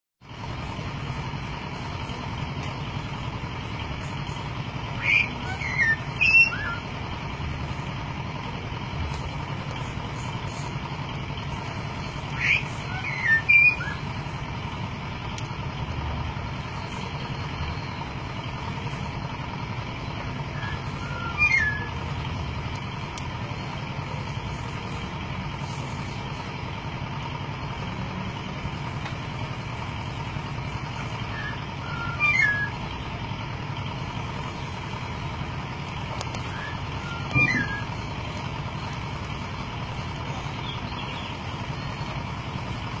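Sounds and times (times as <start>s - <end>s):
steady low hum: 0.2s - 43.0s
myna whistled calls: 4.9s - 6.9s, 12.3s - 14.1s, 20.4s - 22.0s, 31.0s - 32.9s, 36.4s - 38.0s.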